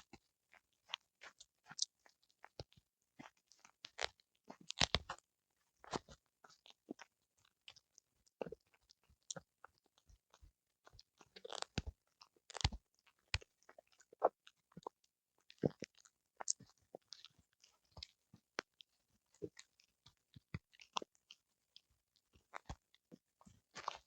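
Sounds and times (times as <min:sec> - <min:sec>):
dog crunching and chewing: 0:00.8 - 0:05.2, 0:10.9 - 0:11.9, 0:12.5 - 0:18.7, 0:23.7 - 0:24.0.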